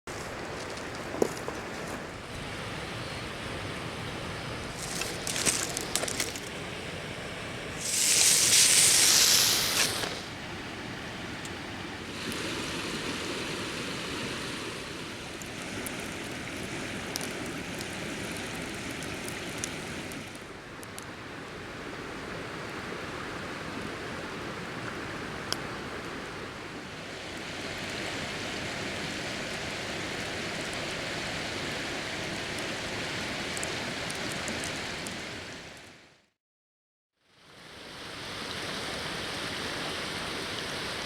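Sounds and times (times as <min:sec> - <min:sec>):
river water flowing: 0:00.1 - 0:36.0, 0:37.4 - 0:41.0
loud hiss: 0:07.8 - 0:10.4.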